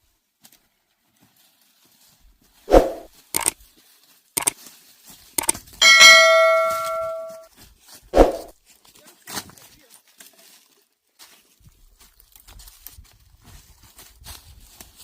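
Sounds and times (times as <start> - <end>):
metal object struck ringing: 5.8 - 7.4.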